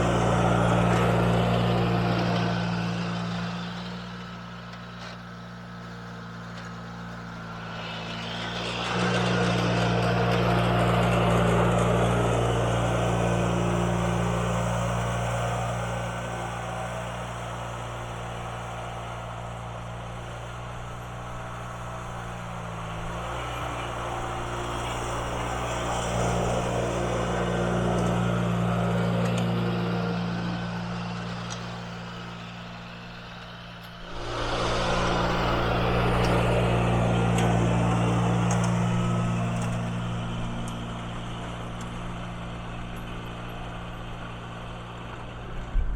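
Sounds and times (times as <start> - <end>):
garden tractor engine running: 0.0 - 45.9.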